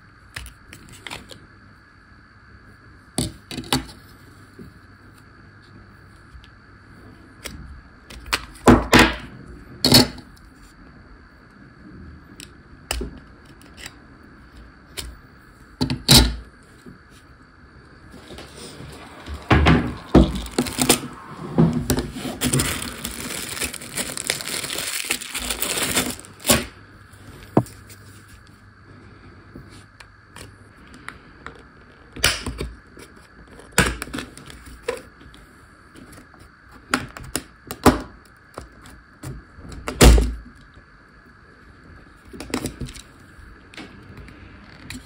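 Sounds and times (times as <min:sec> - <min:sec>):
dense crackling and rustling: 0:18.0 - 0:26.7.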